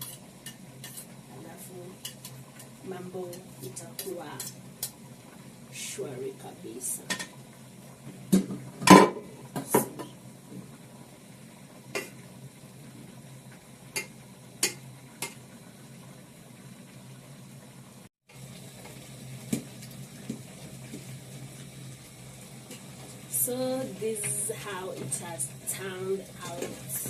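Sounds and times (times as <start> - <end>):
low steady hum: 18.6 - 27.0.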